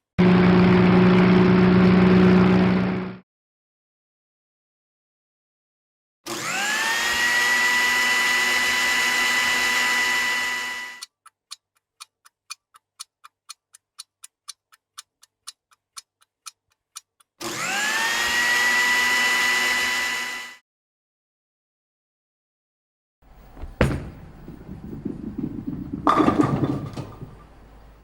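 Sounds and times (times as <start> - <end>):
small electric motor whine: 6.3 - 11.0, 17.4 - 20.6
quick even ticks: 11.0 - 17.4.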